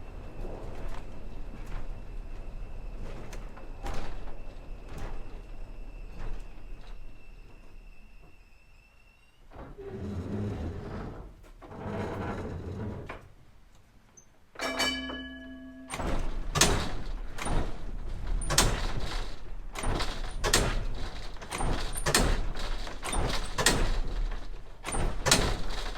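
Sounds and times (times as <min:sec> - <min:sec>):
light rail vehicle rumble: 0:00.0 - 0:11.2, 0:14.6 - 0:25.9
short single-pitched tone: 0:14.6 - 0:16.1
wheels clacking over trackwork: 0:14.6 - 0:25.9.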